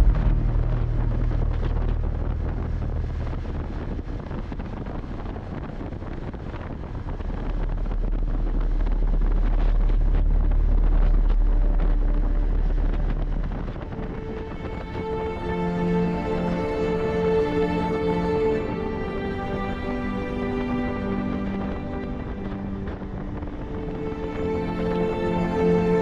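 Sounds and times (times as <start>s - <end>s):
motorcycle low rumble: 0.0s - 14.8s
wind rushing over microphone: 0.0s - 15.8s, 18.1s - 26.0s.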